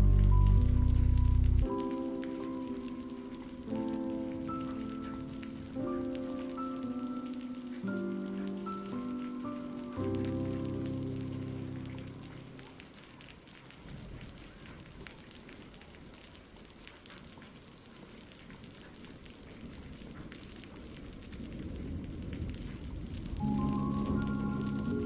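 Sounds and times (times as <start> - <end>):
low rumble: 0.0 - 1.7
music track: 0.0 - 13.0, 23.4 - 25.0
raindrops pattering: 0.0 - 25.0
steady rain hiss: 0.0 - 25.0.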